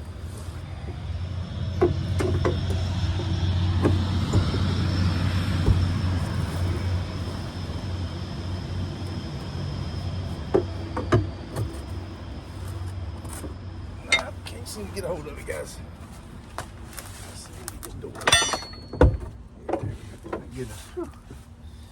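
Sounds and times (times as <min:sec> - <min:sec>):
vehicle engine droning: 0:00.0 - 0:21.9.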